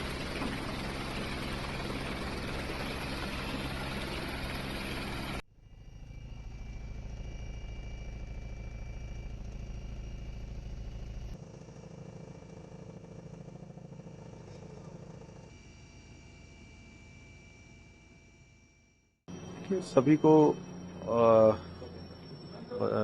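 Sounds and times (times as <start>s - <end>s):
low engine hum: 0.0s - 15.5s
loud engine noise: 19.3s - 23.0s.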